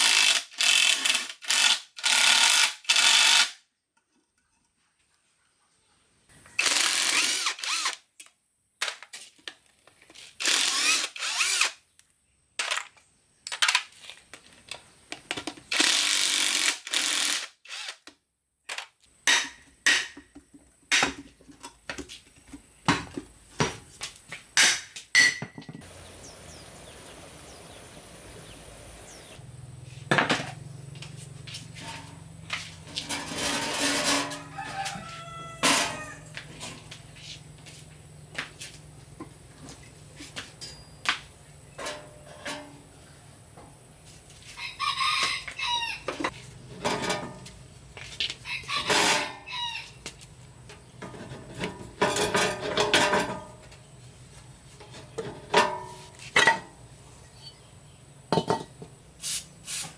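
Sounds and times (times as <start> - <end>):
power tool bursts: 0.0 - 3.6, 6.6 - 8.0, 10.4 - 11.8, 15.7 - 18.0.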